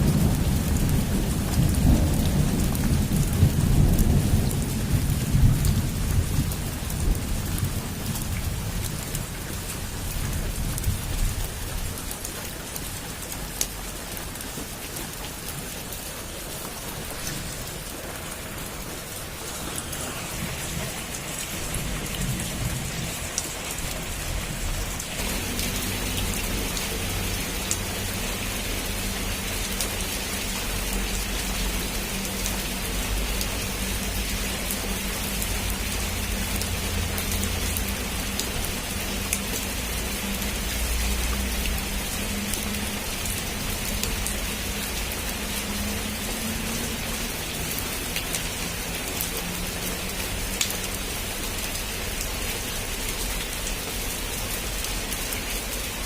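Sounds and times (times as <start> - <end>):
heavy rain on a roof: 0.0 - 56.0.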